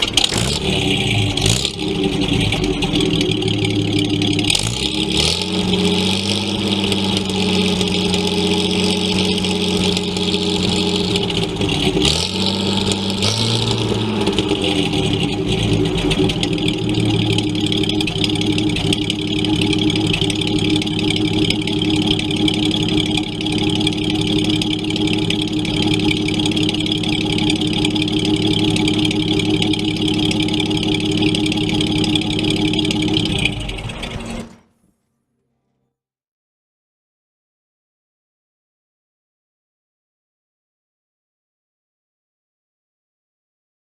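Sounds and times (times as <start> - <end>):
car engine running: 0.0 - 34.7.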